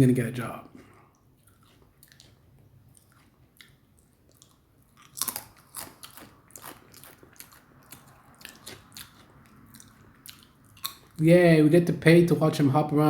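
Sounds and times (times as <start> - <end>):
person chewing crunchy food: 0.8 - 11.2.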